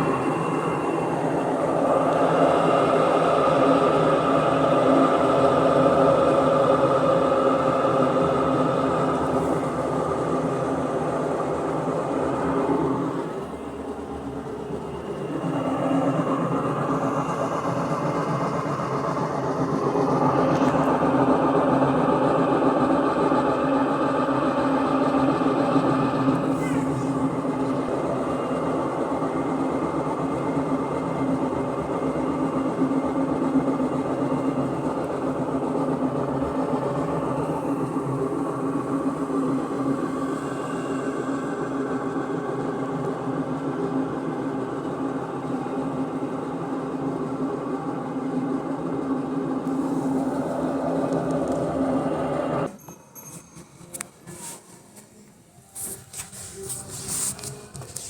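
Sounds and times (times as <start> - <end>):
washing machine spin rumble: 0.0 - 53.2.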